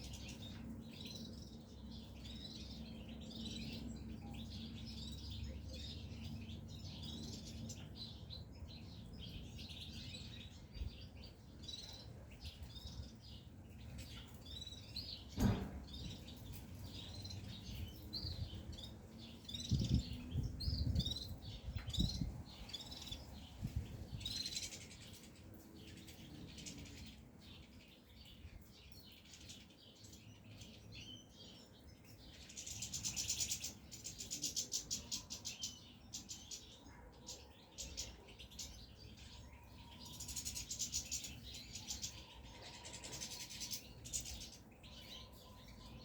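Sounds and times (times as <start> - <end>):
goldfinches chirping and twittering: 0.0 - 46.0
sharp knock: 15.4 - 15.9.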